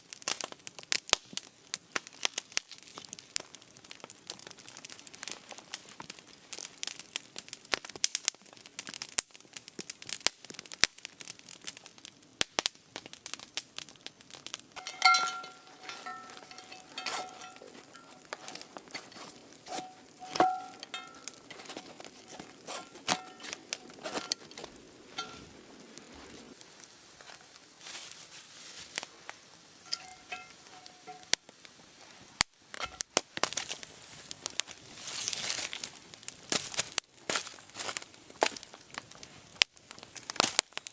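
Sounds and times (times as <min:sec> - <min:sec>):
crinkling and crackling: 0:00.0 - 0:40.9
ringing knocks: 0:14.8 - 0:18.3, 0:19.7 - 0:21.6, 0:29.9 - 0:31.3.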